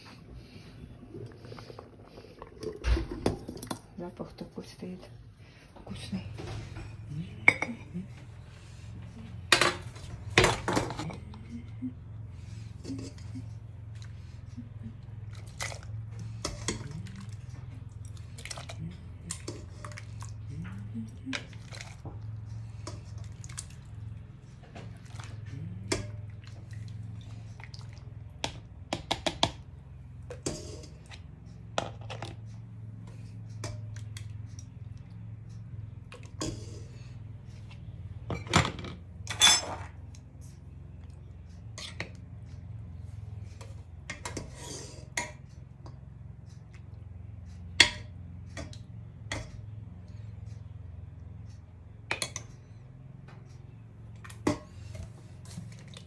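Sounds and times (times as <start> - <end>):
steady low hum: 0.0 - 56.0
glass jars and utensils clinking: 38.3 - 40.0.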